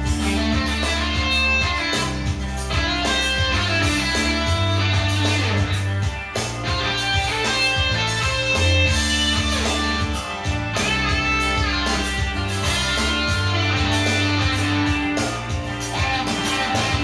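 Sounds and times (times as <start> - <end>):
bass and drums: 0.0 - 17.0
electric guitar melodic lines: 0.0 - 17.0.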